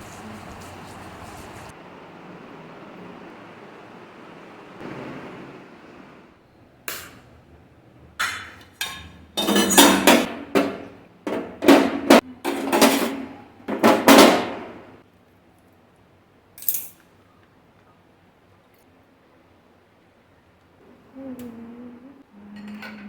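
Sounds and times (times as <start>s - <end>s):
hard objects knocking and clattering: 8.2s - 15.0s.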